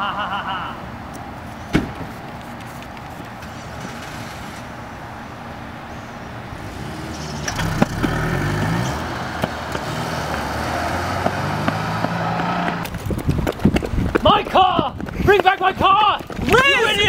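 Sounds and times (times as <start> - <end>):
car engine revving: 6.5 - 12.9.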